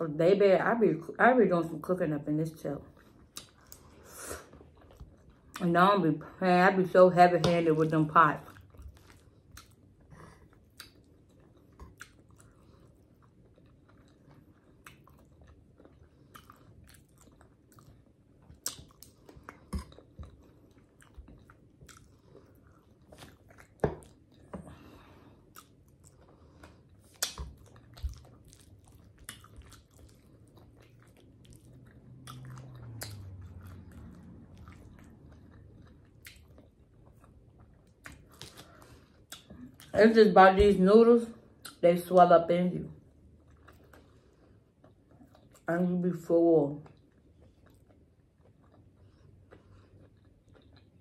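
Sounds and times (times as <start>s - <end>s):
chewing noodles with mouth smacks: 8.4s - 40.0s, 43.0s - 45.7s, 46.8s - 51.0s.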